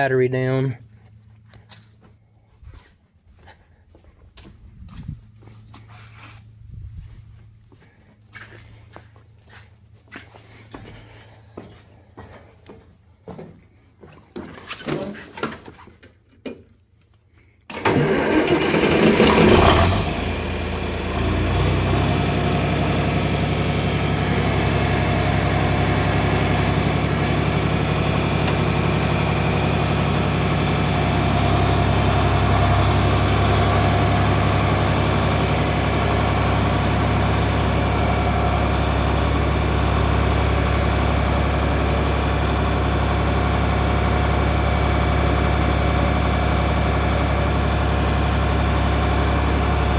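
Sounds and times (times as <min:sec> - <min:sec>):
tractor engine starting and idling: 0:17.7 - 0:49.9.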